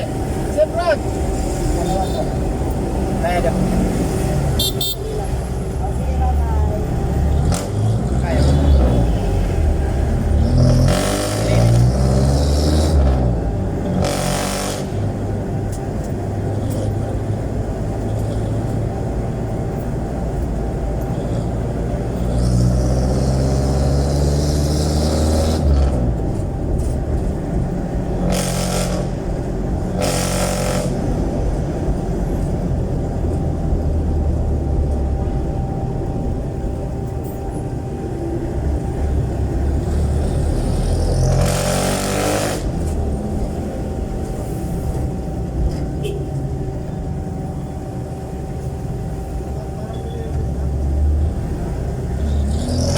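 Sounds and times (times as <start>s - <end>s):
loud diesel engine revving: 6.8s - 15.5s, 22.1s - 26.9s, 27.8s - 32.4s, 38.4s - 43.6s, 50.9s - 52.9s.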